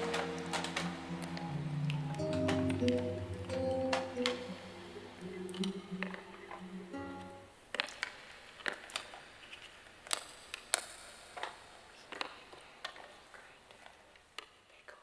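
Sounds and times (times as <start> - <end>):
faint hiss: 0.0 - 13.9.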